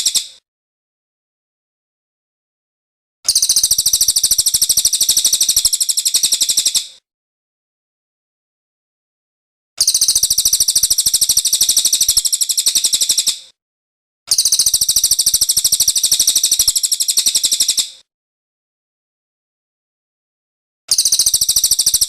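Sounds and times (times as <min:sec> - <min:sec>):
bird trilling: 0:20.9 - 0:22.0.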